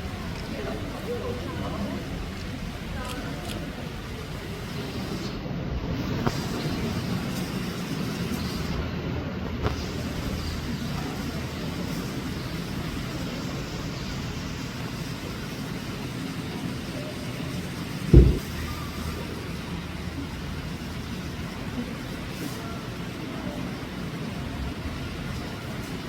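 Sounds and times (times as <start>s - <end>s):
loud deep thump: 18.1s - 18.7s.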